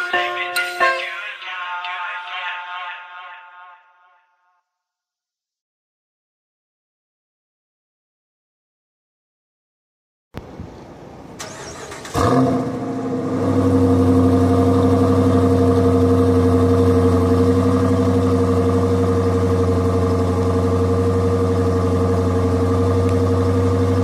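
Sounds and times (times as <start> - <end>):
car engine idling: 11.4 - 24.0
car engine starting and revving: 11.4 - 24.0.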